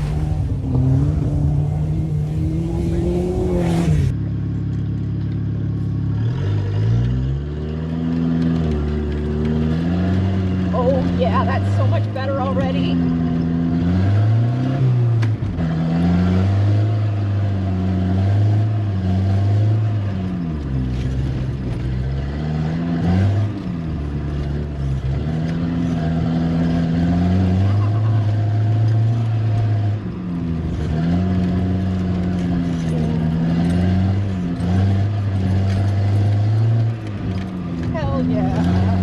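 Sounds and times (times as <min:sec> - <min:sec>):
turbocharged car engine revving: 0:00.0 - 0:04.2, 0:06.1 - 0:39.0.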